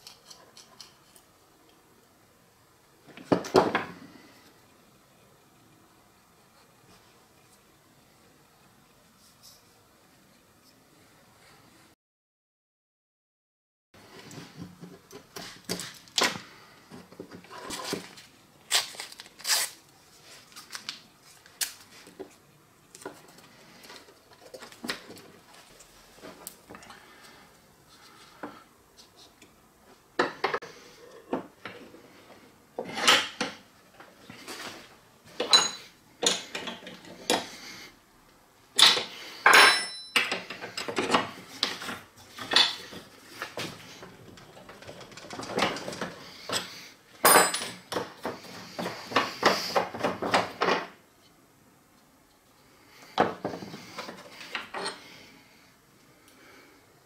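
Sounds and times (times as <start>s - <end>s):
drill parts clinking on workbench: 47.2s - 48.0s.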